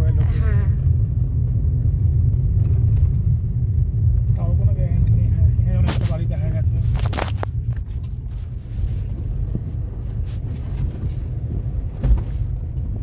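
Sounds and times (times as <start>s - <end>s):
car engine and tyre rumble: 0.0s - 13.0s
thump: 12.0s - 12.4s.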